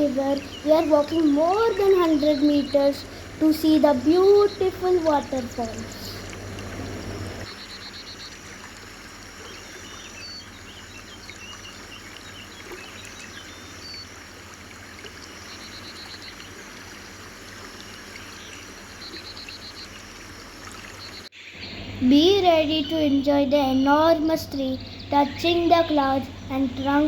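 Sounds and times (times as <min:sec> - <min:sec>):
rapid pulsing call: 0:00.0 - 0:08.5.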